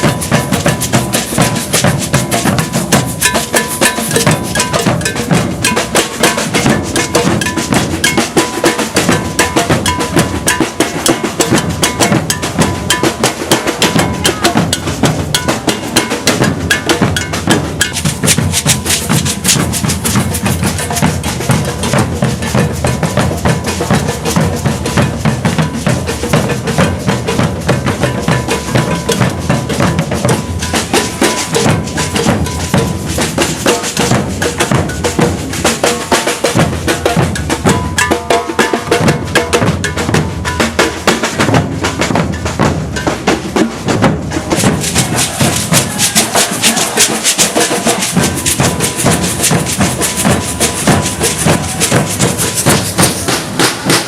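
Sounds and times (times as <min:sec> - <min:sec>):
metal bell: 0:00.0 - 0:35.6, 0:37.2 - 0:41.6, 0:42.2 - 0:43.5, 0:44.3 - 0:53.6
snare drums: 0:00.0 - 0:54.0.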